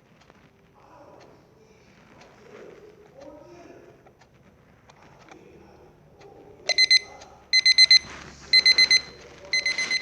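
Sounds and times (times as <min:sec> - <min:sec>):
high-pitched alarm beeps: 0:06.7 - 0:10.0.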